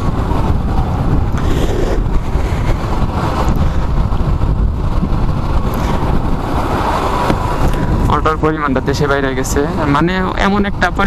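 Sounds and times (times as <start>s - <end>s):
motorcycle engine: 0.0s - 10.3s
road noise: 0.0s - 11.0s
wind buffeting microphone: 0.0s - 11.0s.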